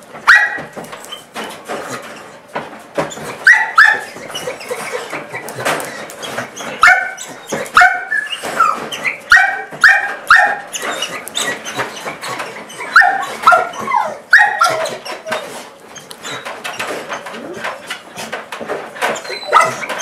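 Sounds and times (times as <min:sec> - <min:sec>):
dog yelping: 0:03.4 - 0:05.5, 0:06.6 - 0:16.5, 0:19.1 - 0:20.0
dog panting: 0:04.0 - 0:07.7, 0:10.7 - 0:20.0.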